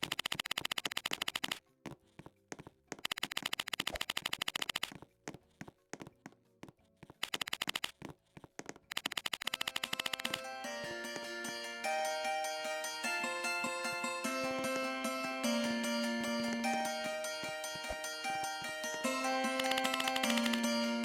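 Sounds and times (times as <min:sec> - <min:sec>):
rapid sharp clicks: 0:00.0 - 0:01.6, 0:03.0 - 0:05.0, 0:07.2 - 0:08.0, 0:08.9 - 0:10.6
music: 0:09.5 - 0:21.0.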